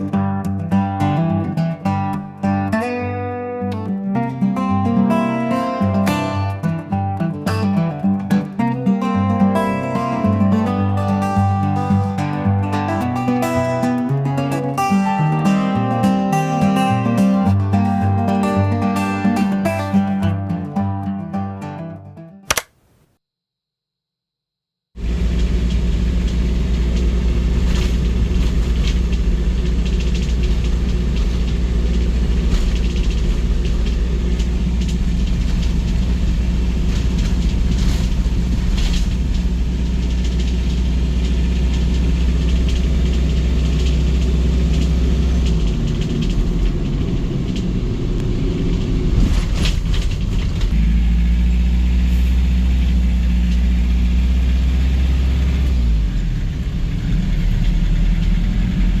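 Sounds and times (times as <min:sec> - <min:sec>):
machine humming: 0:25.0 - 0:49.2.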